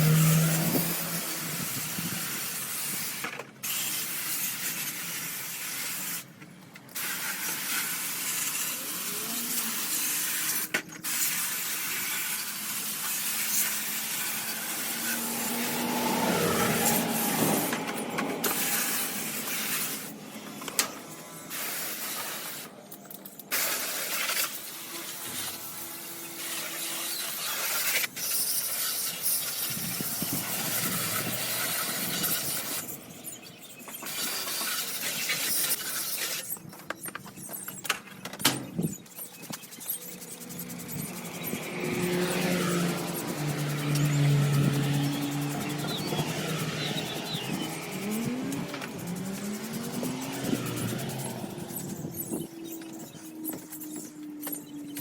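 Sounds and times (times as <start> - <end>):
water spraying from hose: 0.0 - 22.8, 23.4 - 36.7, 38.6 - 55.0.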